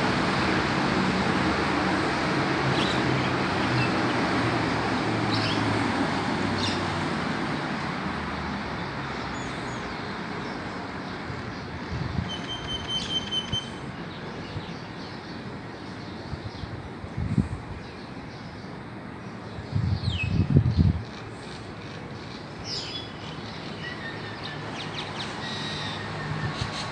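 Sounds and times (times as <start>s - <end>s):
passing vehicle engine hum: 0.0s - 10.3s.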